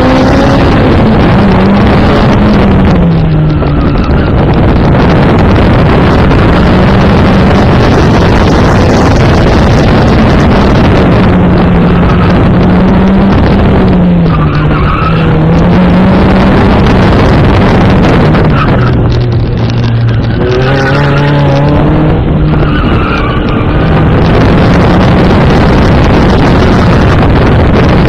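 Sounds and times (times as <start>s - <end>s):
car engine at high revs: 0.0s - 28.0s.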